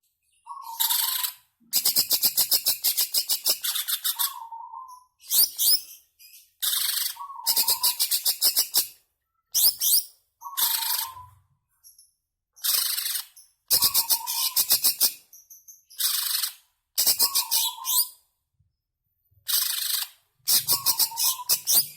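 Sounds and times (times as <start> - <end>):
bird chattering and whistling: 0.5 - 5.9, 6.6 - 8.9, 9.6 - 11.4, 12.6 - 15.2, 15.9 - 18.2, 19.5 - 21.9.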